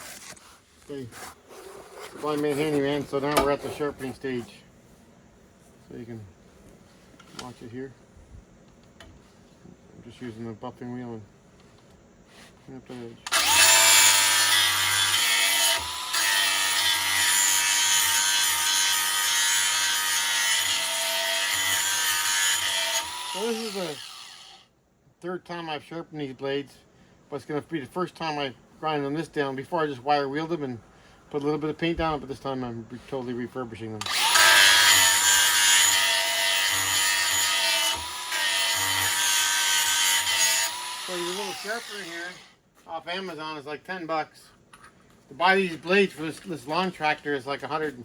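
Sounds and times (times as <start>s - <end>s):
electric sharpener grinding blade: 13.3s - 24.6s, 34.0s - 42.5s.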